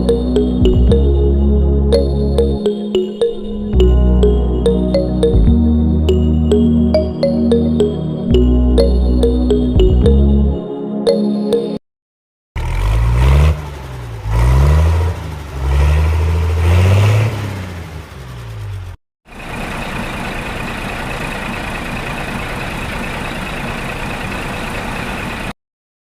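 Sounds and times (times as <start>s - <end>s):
vehicle engine revving: 12.6s - 19.0s.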